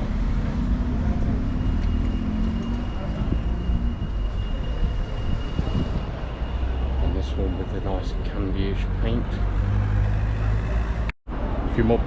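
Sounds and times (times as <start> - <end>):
vehicle engine rumbling: 0.0 - 11.7
people talking: 7.0 - 9.4, 11.8 - 12.0.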